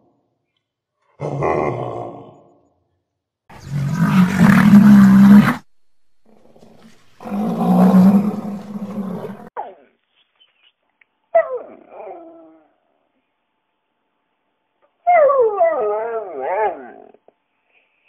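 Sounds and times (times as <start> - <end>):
rhinoceros bellowing: 3.5 - 9.5.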